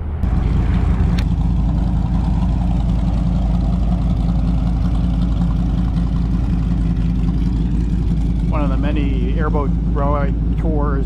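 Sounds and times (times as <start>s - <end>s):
airboat engine droning: 0.0s - 11.0s.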